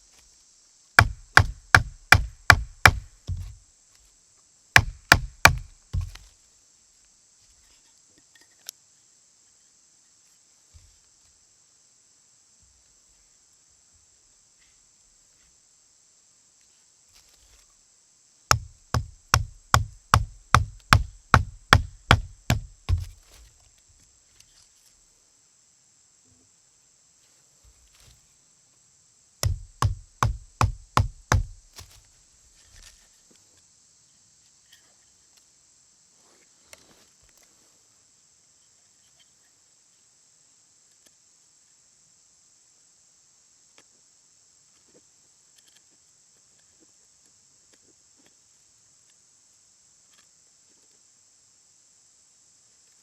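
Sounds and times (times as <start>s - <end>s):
sharp rhythmic knocks: 1.0s - 3.4s, 4.8s - 6.1s, 18.5s - 23.1s, 29.4s - 31.6s.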